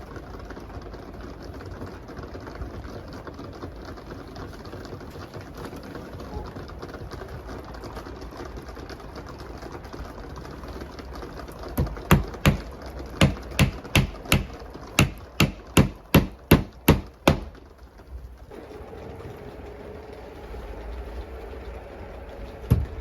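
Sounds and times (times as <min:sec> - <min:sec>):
sharp knocks: 0:11.8 - 0:17.6.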